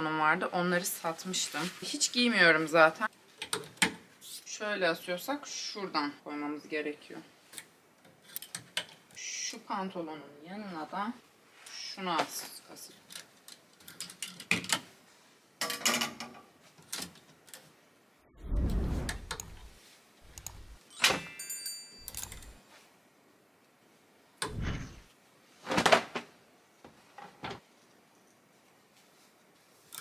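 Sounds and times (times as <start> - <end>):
clothes hangers clicking on rail: 20.3 - 22.6.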